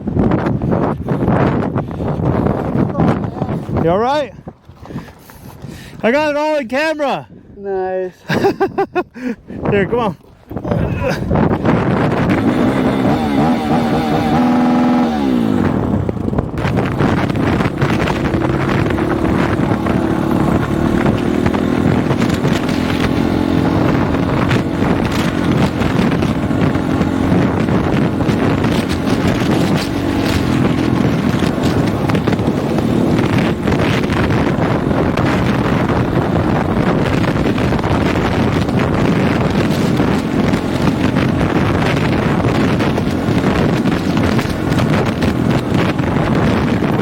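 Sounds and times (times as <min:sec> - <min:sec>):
wind buffeting microphone: 0:00.0 - 0:47.0
dirt bike engine running: 0:11.3 - 0:47.0.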